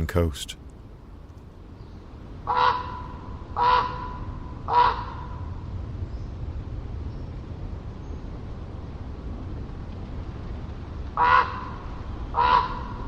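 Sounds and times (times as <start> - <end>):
distant ocean surf: 0.0 - 13.0
raven calling: 2.4 - 5.6, 11.2 - 13.0.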